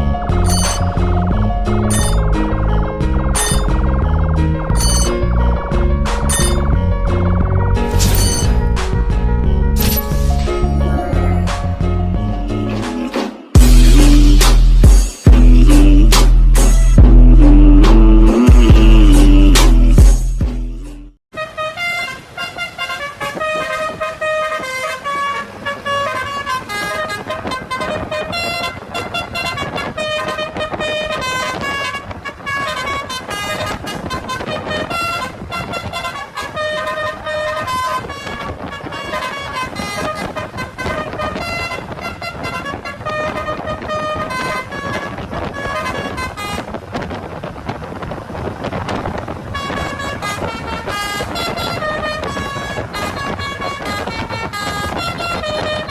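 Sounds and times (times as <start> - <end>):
multi-tone air horn notes: 1.9 - 2.2, 3.3 - 3.7, 21.4 - 46.6, 49.6 - 55.9.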